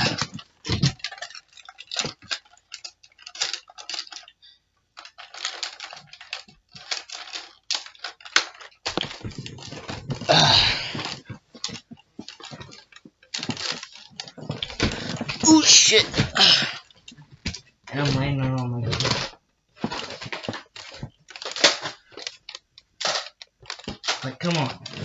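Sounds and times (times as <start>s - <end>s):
rustling: 0.0s - 25.0s
toy blasters clicking and clattering: 0.0s - 25.0s.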